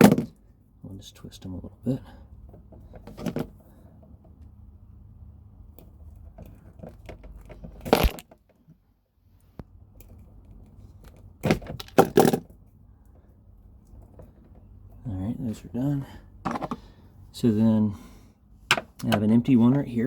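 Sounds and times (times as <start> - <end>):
wire handling clicks and rustles: 2.4 - 4.6, 5.6 - 8.8, 9.4 - 15.0.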